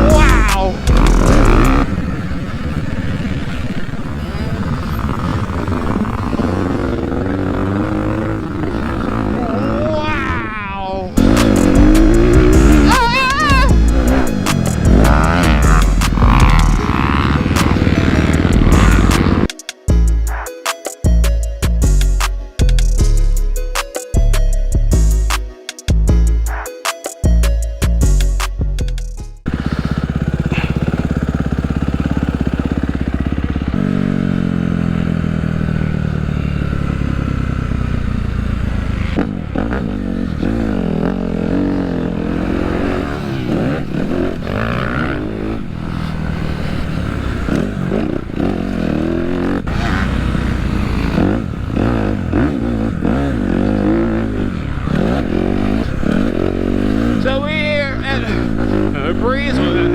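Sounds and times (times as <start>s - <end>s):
dirt bike engine revving: 0.0s - 20.5s, 29.4s - 59.9s.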